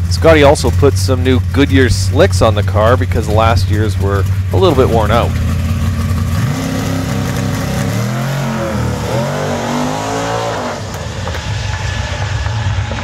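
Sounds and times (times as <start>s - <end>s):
car engine at full throttle: 0.0s - 13.0s.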